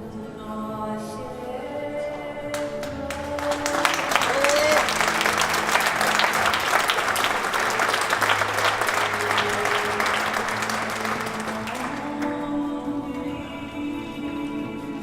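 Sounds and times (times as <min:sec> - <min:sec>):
soft background music: 0:00.0 - 0:15.0
audience applauding: 0:02.5 - 0:12.4.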